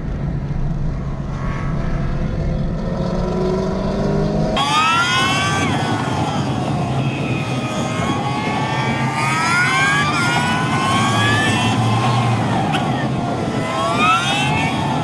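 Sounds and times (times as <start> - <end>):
car engine accelerating: 0.0 - 8.2
road and wind noise: 0.0 - 15.0.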